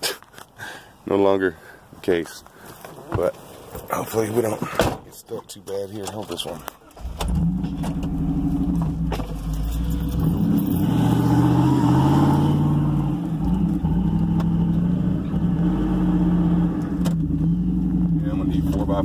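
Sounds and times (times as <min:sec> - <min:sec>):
truck engine revving in mud: 0:07.0 - 0:18.2.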